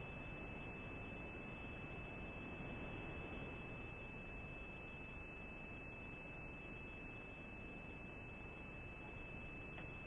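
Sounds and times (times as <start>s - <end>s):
faint tick: 9.7s - 10.0s.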